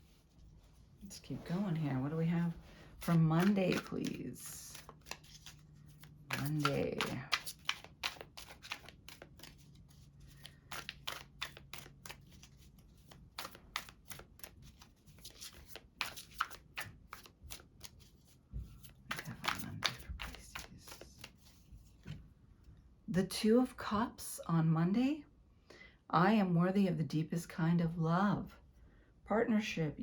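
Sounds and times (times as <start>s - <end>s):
cards being shuffled: 2.5s - 22.2s.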